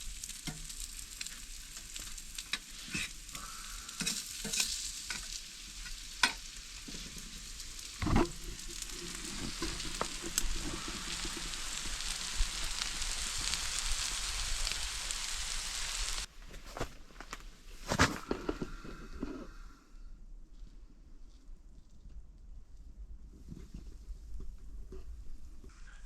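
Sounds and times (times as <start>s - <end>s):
food sizzling in a frying pan: 0.0s - 16.3s.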